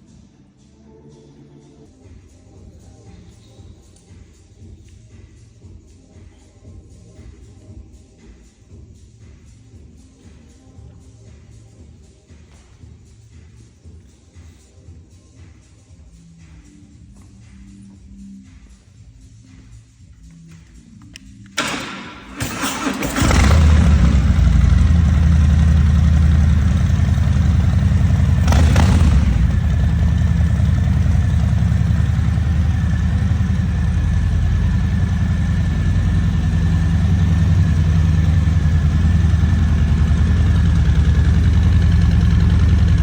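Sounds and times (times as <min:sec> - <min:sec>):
motorcycle engine idling: 0:21.6 - 0:43.0
starter cranking: 0:21.6 - 0:43.0.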